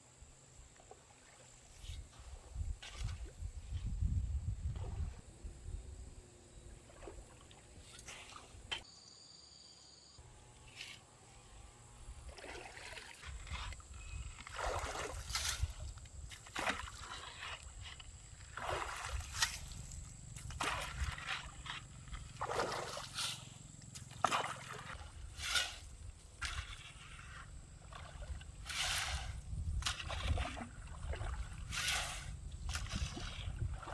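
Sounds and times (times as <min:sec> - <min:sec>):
stream water splashing: 0:06.8 - 0:08.8, 0:12.2 - 0:33.9.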